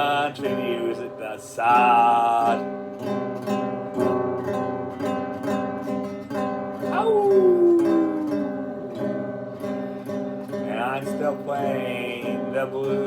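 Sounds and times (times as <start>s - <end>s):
acoustic guitar strumming blues: 0.0s - 13.0s
sliding guitar note: 6.8s - 9.9s.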